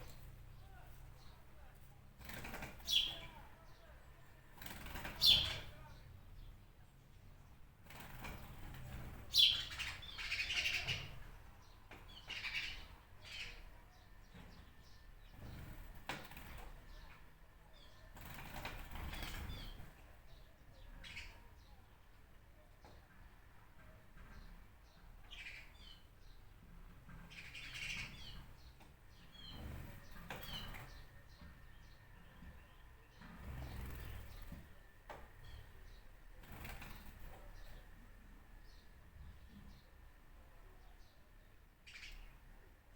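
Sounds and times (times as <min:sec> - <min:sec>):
birds calling: 0:00.0 - 0:04.0, 0:04.6 - 0:06.6, 0:08.0 - 0:17.2, 0:24.2 - 0:40.0
songbirds chirping: 0:00.0 - 0:42.9
rapid chattering bird calls: 0:02.2 - 0:03.4, 0:04.5 - 0:05.9, 0:07.9 - 0:13.7, 0:17.8 - 0:21.4, 0:25.3 - 0:26.1, 0:27.1 - 0:31.9, 0:32.6 - 0:34.7, 0:35.4 - 0:38.0.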